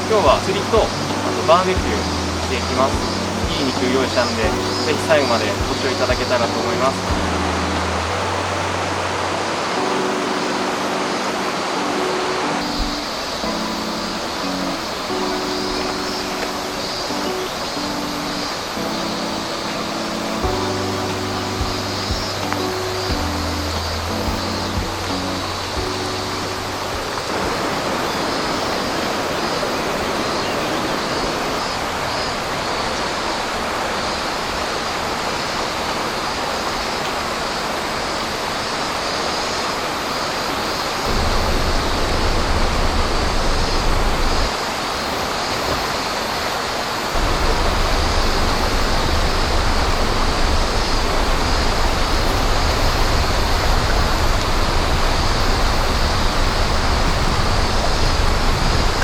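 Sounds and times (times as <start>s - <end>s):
flowing water rushing: 0.0s - 59.0s
deep low rumble: 47.2s - 59.0s.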